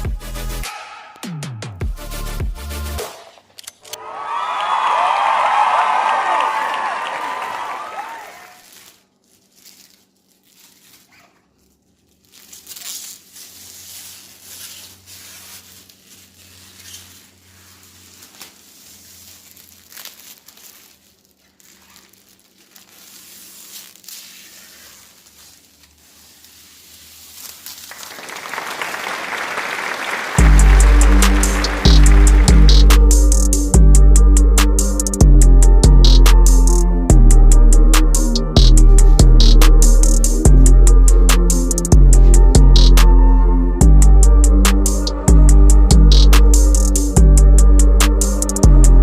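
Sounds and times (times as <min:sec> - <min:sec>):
plastic film crinkling: 0:06.1 - 0:33.8, 0:44.2 - 0:45.3, 0:45.9 - 0:48.8.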